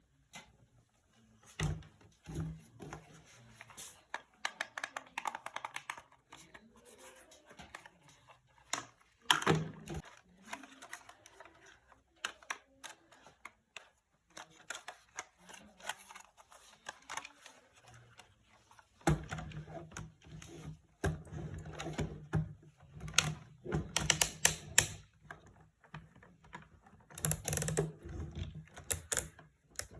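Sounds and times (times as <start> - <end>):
plastic toys clicking and rattling: 3.6 - 19.0, 23.1 - 25.1, 26.3 - 29.9.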